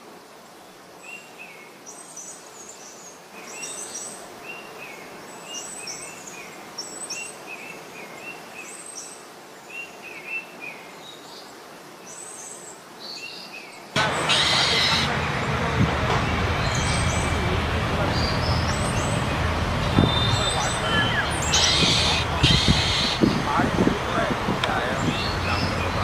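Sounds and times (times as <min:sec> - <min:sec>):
steady background hiss: 0:00.0 - 0:26.0
small birds chirping: 0:12.1 - 0:26.0.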